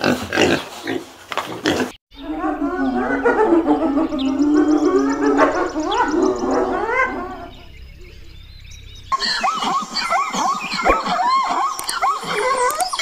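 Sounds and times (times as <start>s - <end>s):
rising warbling pitched sound: 2.1s - 12.2s.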